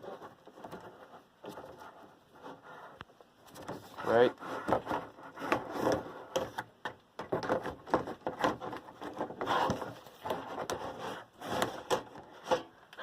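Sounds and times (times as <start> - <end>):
scraping and rubbing: 0.0 - 6.7, 7.4 - 12.8
fan parts knocking and tapping: 4.6 - 12.7.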